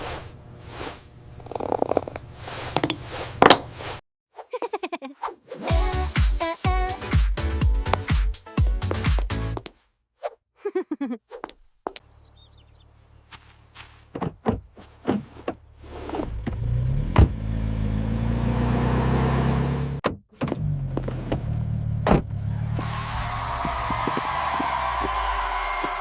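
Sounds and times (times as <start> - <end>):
car engine running: 15.6 - 24.2.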